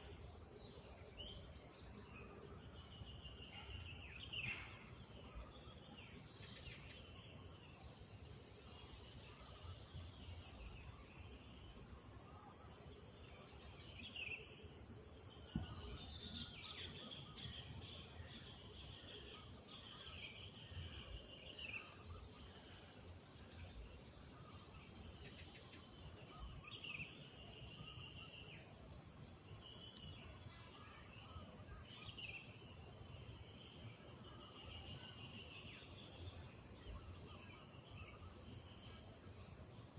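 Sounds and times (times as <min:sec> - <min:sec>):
insects droning: 0:00.0 - 0:39.9
low thump: 0:15.5 - 0:16.0.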